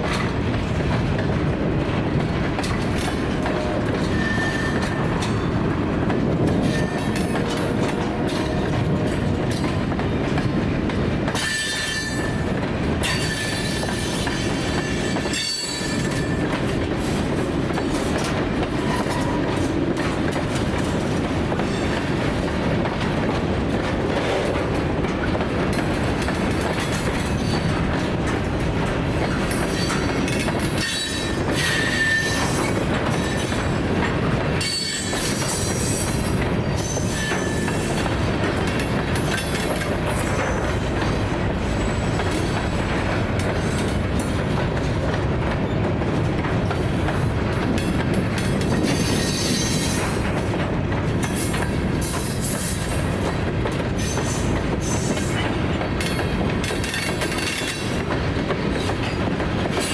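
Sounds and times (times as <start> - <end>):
freight train cars rolling: 0.0 - 59.9
wheels clicking over rail joints: 0.0 - 59.9
high wheel squeal: 4.1 - 5.1, 30.8 - 33.4.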